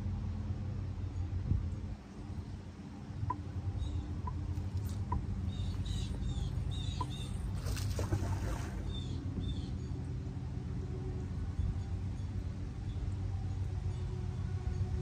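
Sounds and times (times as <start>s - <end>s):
steady low rumble: 0.0s - 15.0s
small bird chirping: 3.3s - 7.7s.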